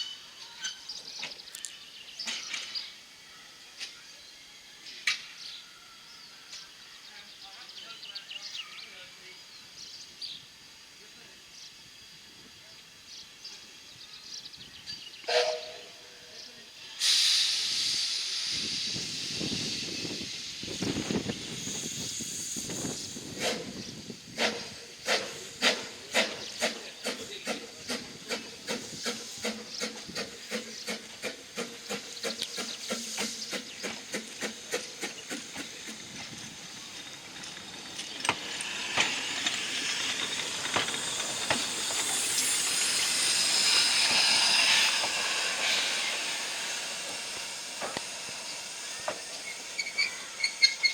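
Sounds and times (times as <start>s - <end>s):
steam hissing: 8.8s - 50.9s
steam whistle toot: 15.2s - 16.0s.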